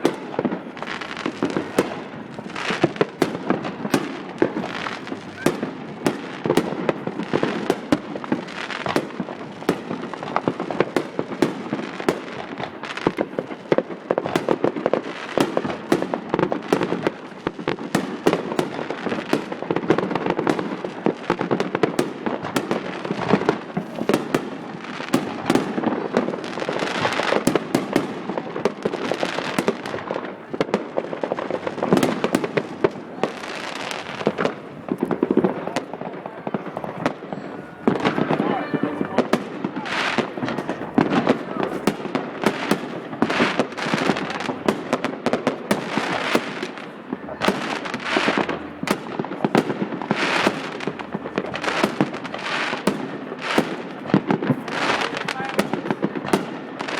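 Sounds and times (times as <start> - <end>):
fireworks bangs and crackling: 0.0 - 56.9.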